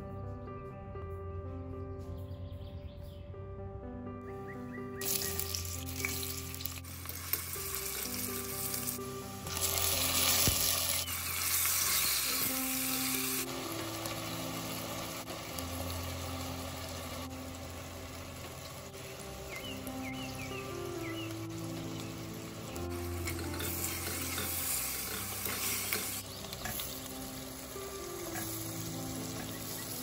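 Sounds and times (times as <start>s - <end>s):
soft background music: 0.0s - 30.0s
food sizzling in hot oil: 5.0s - 30.0s.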